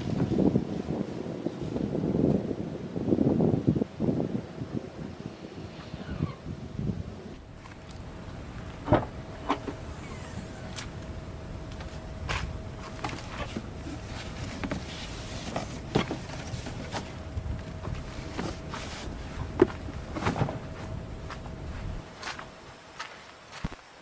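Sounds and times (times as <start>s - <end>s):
footsteps: 11.7s - 23.8s
low rumble: 16.2s - 22.6s.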